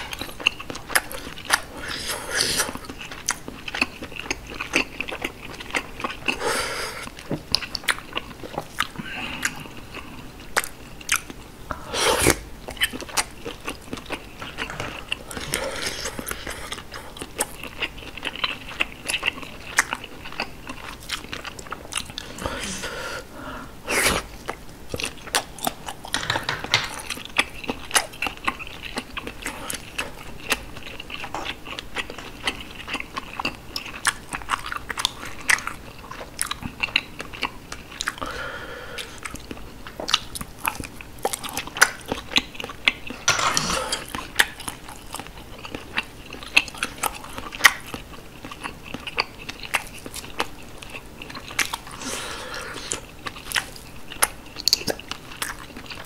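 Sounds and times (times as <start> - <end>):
wet chewing and smacking: 0.0 - 2.0, 2.6 - 6.4, 7.0 - 11.5, 12.2 - 22.4, 24.1 - 38.3, 39.0 - 56.0.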